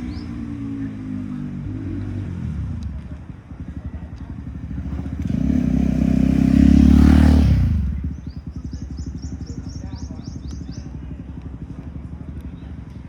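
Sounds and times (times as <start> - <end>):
motorbike engine passing: 0.0 - 13.0.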